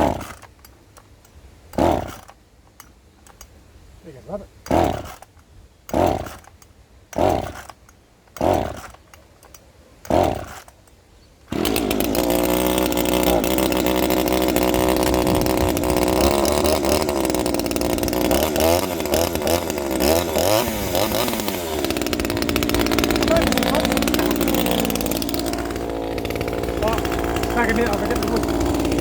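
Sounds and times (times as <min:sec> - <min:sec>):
chainsaw engine revving: 0:00.0 - 0:00.5, 0:01.7 - 0:02.4, 0:04.6 - 0:05.3, 0:05.9 - 0:09.0, 0:10.0 - 0:10.8, 0:11.5 - 0:29.0
starter cord pulls: 0:04.6 - 0:29.0.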